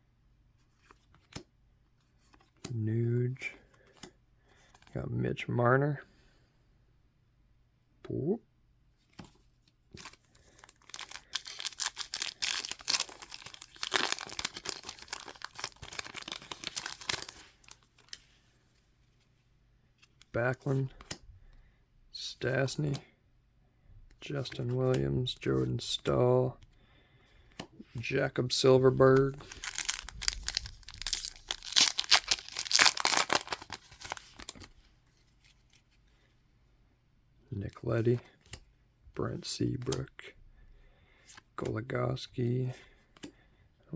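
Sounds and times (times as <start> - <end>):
wrapper being torn and crinkled: 10.0 - 18.2, 29.3 - 34.6.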